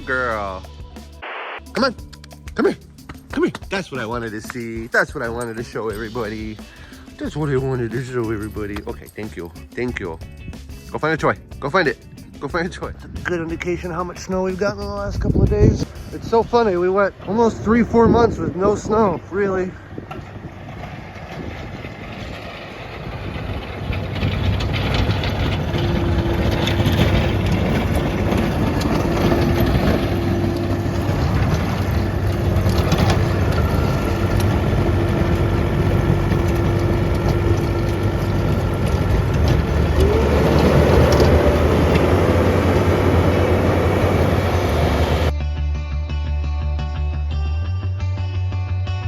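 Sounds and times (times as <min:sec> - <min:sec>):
skid steer engine running: 0:15.9 - 0:45.3.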